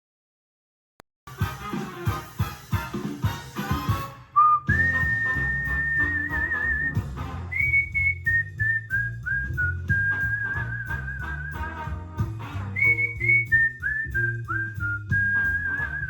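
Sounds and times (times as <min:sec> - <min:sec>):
rhythmic backing music: 0:01.3 - 0:16.0
whistled melody: 0:04.4 - 0:16.0.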